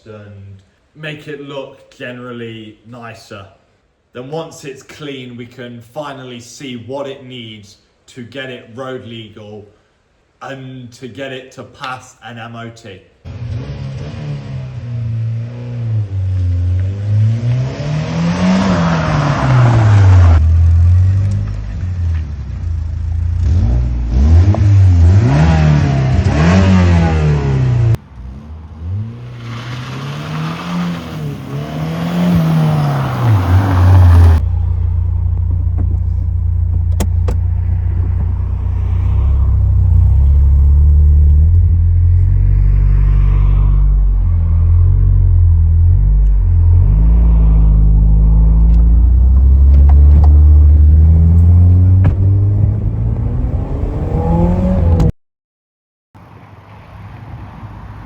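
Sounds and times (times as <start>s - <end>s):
car engine revving: 13.3s - 55.1s.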